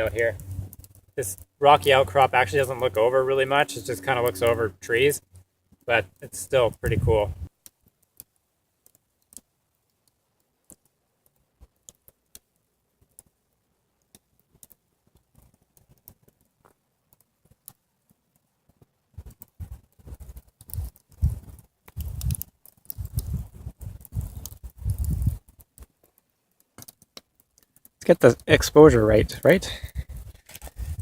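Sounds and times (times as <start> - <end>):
faint clicks: 7.6 - 13.3, 14.0 - 28.5
camera handling rustling and thumps: 30.2 - 31.0.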